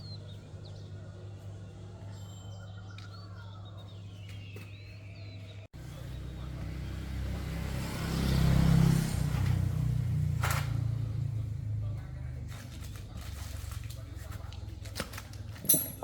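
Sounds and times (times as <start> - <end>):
motorcycle engine running: 5.8 - 13.4.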